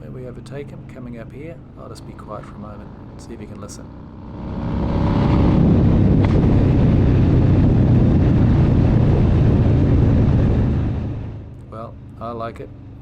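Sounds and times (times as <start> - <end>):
motorcycle exhaust accelerating: 0.0 - 13.0
exhaust pop crack: 4.2 - 9.5.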